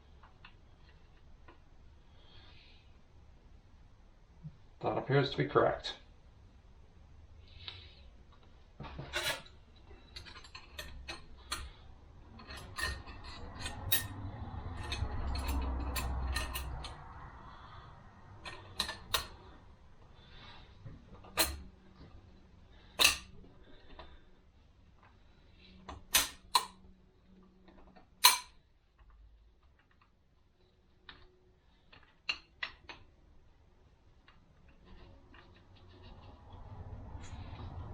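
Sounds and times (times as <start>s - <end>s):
low rumble of sliding metal part: 7.4s - 28.4s, 34.6s - 37.9s
metallic clicks and clinks: 9.1s - 17.2s, 18.4s - 19.4s, 21.2s - 21.7s.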